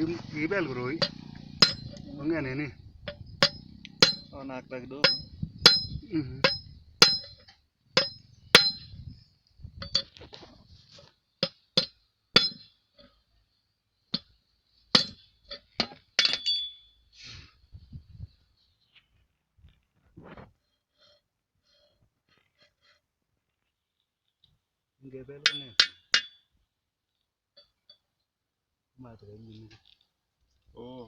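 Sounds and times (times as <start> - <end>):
steel tools clinking on metal: 1.0 - 2.1, 15.0 - 16.9, 25.4 - 26.4.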